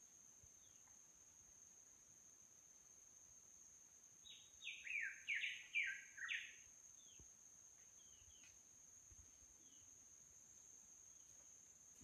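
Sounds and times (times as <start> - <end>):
bird singing: 0.6 - 0.9, 4.2 - 7.3, 7.9 - 8.6, 9.6 - 10.0.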